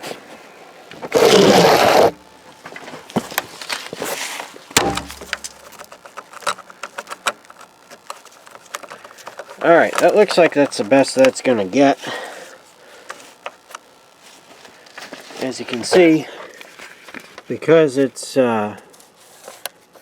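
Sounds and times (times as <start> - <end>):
thud: 4.8 - 5.5.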